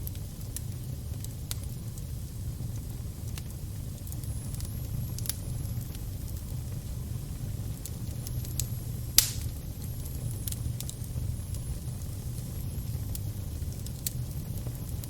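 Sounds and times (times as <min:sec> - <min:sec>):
fire crackling: 0:00.0 - 0:15.0
loud fire pop: 0:09.2 - 0:09.6.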